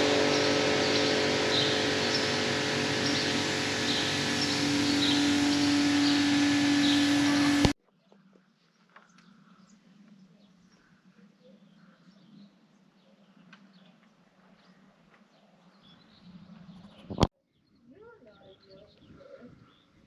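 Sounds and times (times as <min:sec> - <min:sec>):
loud machine hum: 0:00.0 - 0:07.8
small birds chirping: 0:00.0 - 0:20.0.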